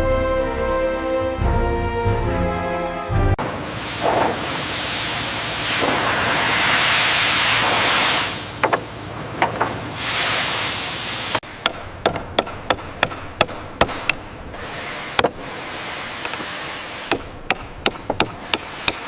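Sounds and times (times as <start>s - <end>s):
steady hiss: 3.4s - 11.4s, 14.5s - 17.3s
sharp knocks on wood: 8.6s - 9.7s.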